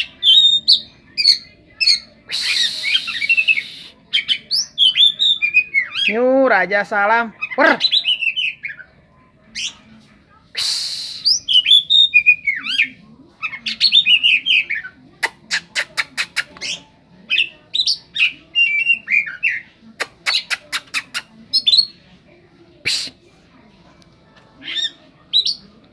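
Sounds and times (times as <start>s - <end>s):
songbird singing whistled song: 0.0s - 6.2s, 7.4s - 8.9s, 10.5s - 14.9s, 16.2s - 22.0s, 24.6s - 25.7s.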